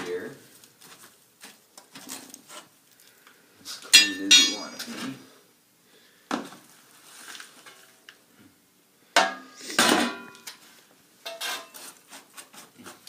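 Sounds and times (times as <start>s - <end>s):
metal clanking and scraping: 4.0s - 5.2s, 9.2s - 10.6s, 11.2s - 12.0s.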